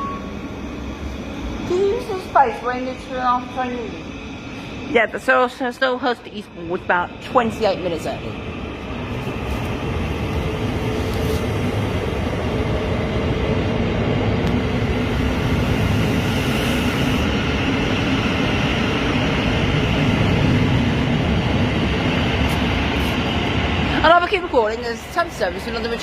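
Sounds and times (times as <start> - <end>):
electric train rumbling: 0.0 - 26.0.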